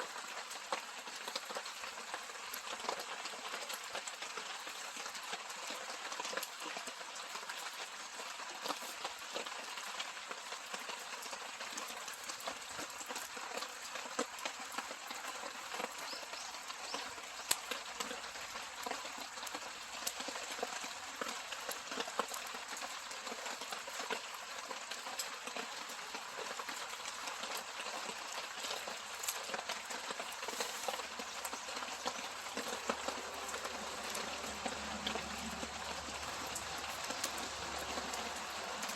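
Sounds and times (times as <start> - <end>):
rain pattering: 0.0 - 38.9
campfire crackling and popping: 8.6 - 38.9.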